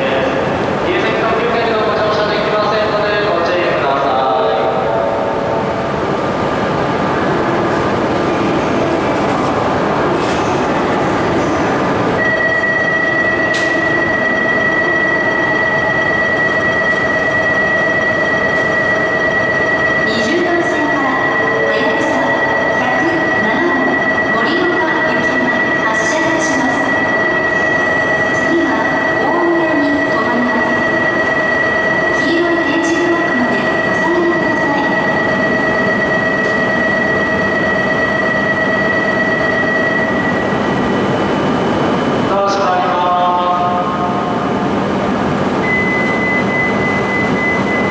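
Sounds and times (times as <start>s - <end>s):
train running: 4.7s - 42.6s.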